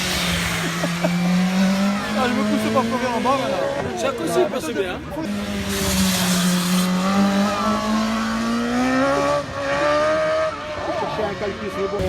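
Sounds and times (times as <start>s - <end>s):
motorcycle engine accelerating hard: 0.0s - 4.1s, 5.1s - 12.0s.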